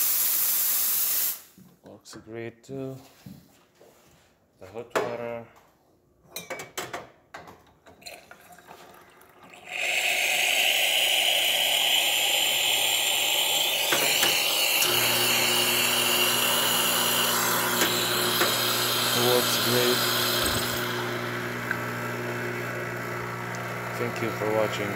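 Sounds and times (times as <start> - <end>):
hiss of water and steam: 0.0 - 1.5, 9.7 - 14.9.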